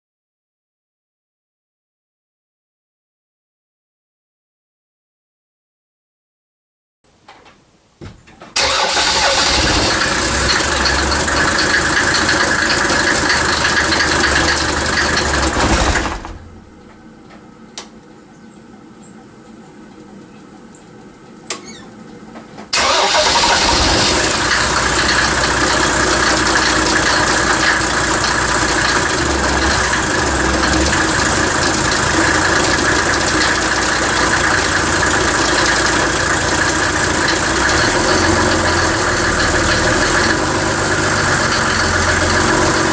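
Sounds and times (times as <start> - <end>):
diesel engine running: 8.6 - 17.6, 22.7 - 42.9.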